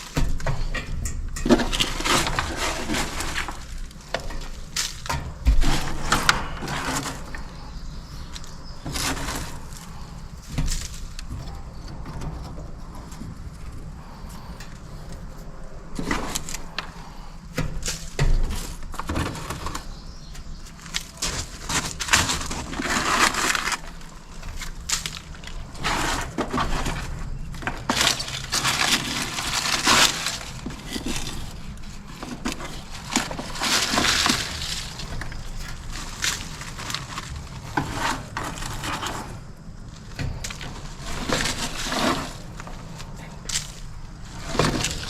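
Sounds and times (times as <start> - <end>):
dry leaves crunching and rustling: 19.9 - 38.8.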